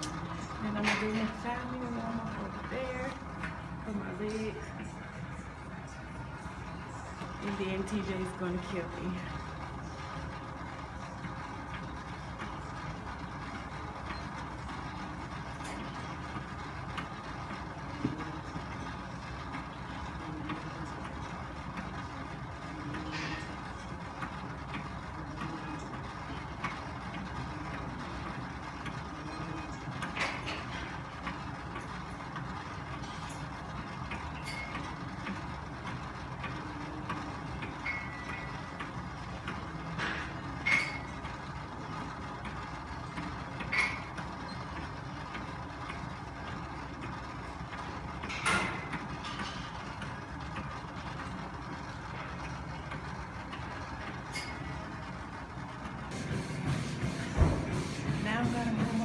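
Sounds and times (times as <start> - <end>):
cardio machine running: 0.0 - 59.0
machine clicks and squeaks: 22.8 - 55.0.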